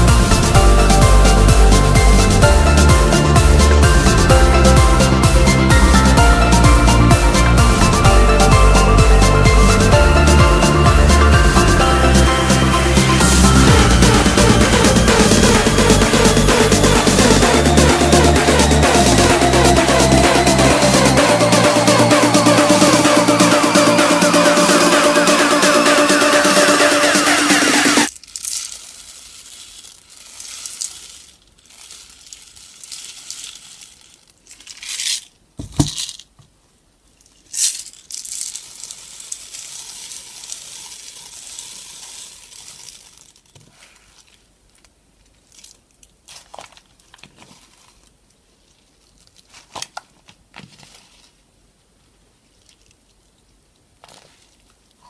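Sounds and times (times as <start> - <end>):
crunchy slime crackling: 28.1 - 35.3.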